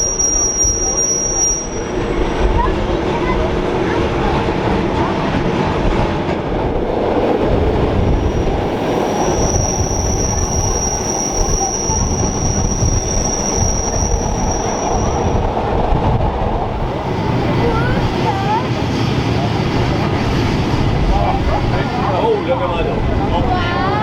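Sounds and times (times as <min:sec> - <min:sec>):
high-pitched wheel squeal: 0:00.0 - 0:02.1, 0:08.2 - 0:15.4
train rumbling on rails: 0:00.0 - 0:24.0.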